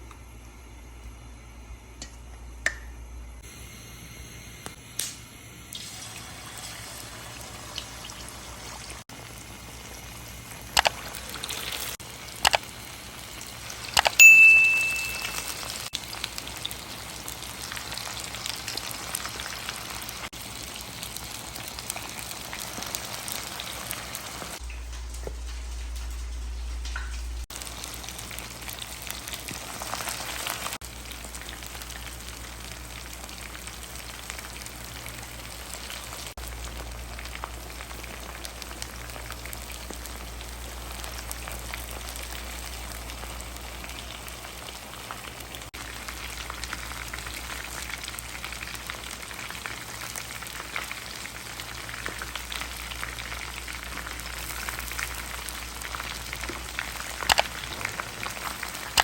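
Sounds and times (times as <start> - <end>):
chicken deep-frying in hot oil: 3.0 - 59.0.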